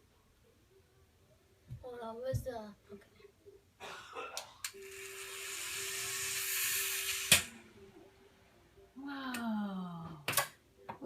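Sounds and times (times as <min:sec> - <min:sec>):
toy helicopter rotor whirring: 0:04.8 - 0:07.5.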